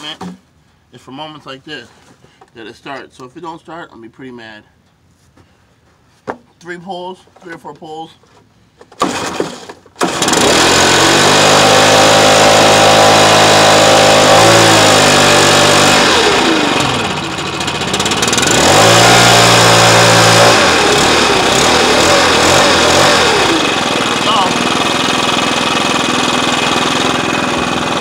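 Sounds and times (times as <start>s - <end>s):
leaf blower engine revving: 9.0s - 28.0s.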